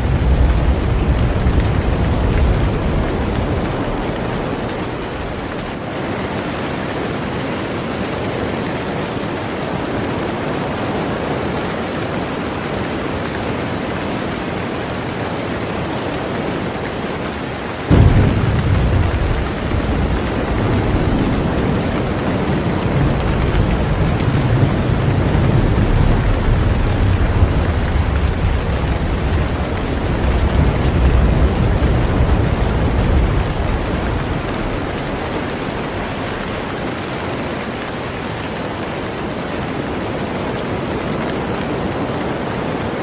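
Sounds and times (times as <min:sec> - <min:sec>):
deep thunderclap rumbling: 0:00.0 - 0:06.9, 0:17.8 - 0:37.8
heavy rain on a boat: 0:00.0 - 0:43.0.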